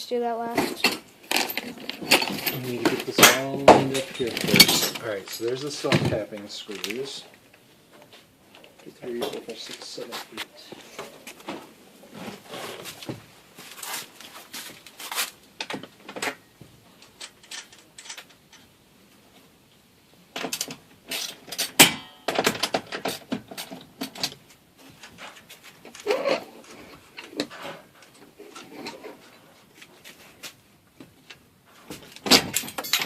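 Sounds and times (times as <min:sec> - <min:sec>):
small metal screws clinking: 0:17.0 - 0:18.8, 0:32.3 - 0:33.0.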